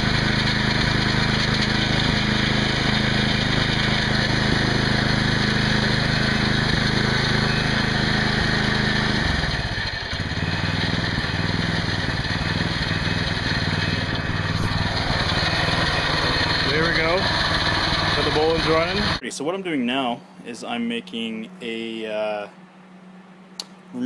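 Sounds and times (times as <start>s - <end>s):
garden tractor engine running: 0.0s - 19.2s.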